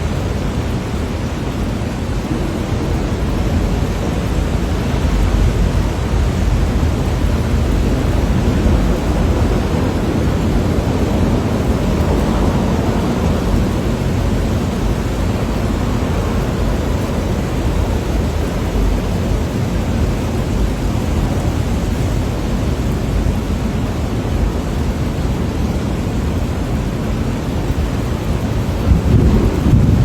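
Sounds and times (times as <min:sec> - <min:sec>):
heavy rain: 0:00.0 - 0:30.0
wind rumble on microphone: 0:00.0 - 0:30.0.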